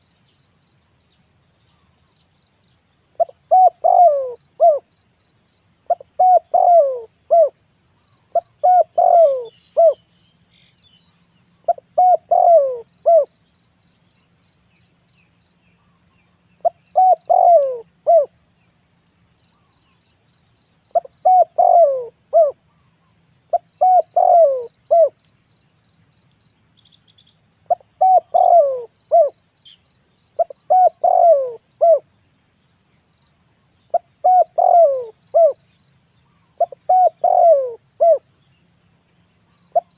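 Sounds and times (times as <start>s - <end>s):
small birds chirping: 0.0s - 39.9s
dove cooing: 3.2s - 4.9s, 5.9s - 7.6s, 8.3s - 10.0s, 11.7s - 13.3s, 16.6s - 18.4s, 20.9s - 22.8s, 23.5s - 25.2s, 27.7s - 29.4s, 30.4s - 32.1s, 33.9s - 35.6s, 36.3s - 38.3s.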